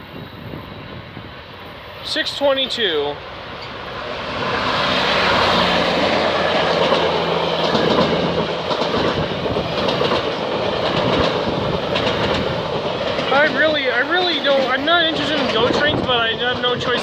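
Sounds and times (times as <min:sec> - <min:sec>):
wheels rushing on rail: 0:00.0 - 0:17.0
wheels clicking over rail joints: 0:04.9 - 0:17.0.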